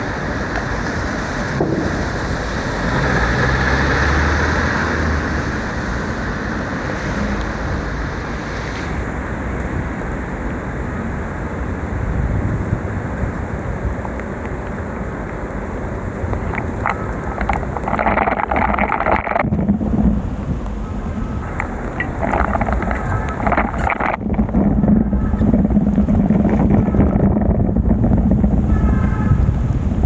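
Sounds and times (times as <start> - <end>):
bicycle tyres hissing on wet road: 0.0 - 17.9
wind rushing over microphone: 0.0 - 30.0.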